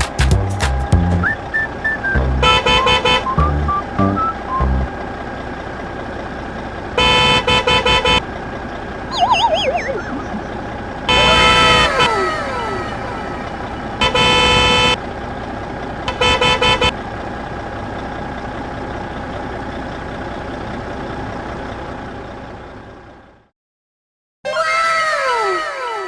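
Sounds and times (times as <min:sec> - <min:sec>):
engine drone: 0:00.0 - 0:23.4
loud horn honks: 0:02.4 - 0:03.4, 0:07.0 - 0:08.2, 0:11.1 - 0:12.4, 0:14.0 - 0:15.0, 0:16.1 - 0:17.0
falling whistling tones: 0:09.1 - 0:10.5.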